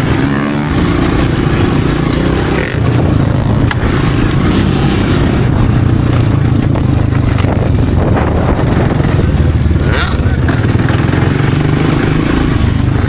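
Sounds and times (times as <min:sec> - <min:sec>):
dirt bike engine running loud: 0:00.0 - 0:13.0.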